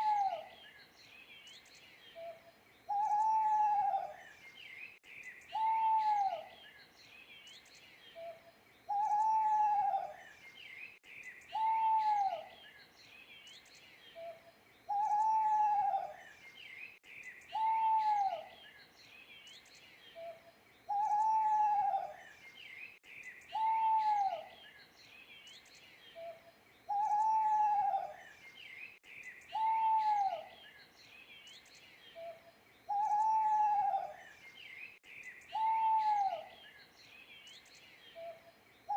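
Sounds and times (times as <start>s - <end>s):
owl hooting: 0.0s - 0.5s, 2.2s - 4.2s, 5.5s - 6.5s, 8.2s - 10.2s, 11.5s - 12.5s, 14.2s - 16.2s, 17.5s - 18.5s, 20.2s - 22.2s, 23.5s - 24.5s, 26.2s - 28.2s, 29.5s - 30.6s, 32.2s - 34.2s, 35.5s - 36.6s
small birds chirping faintly: 0.0s - 38.9s.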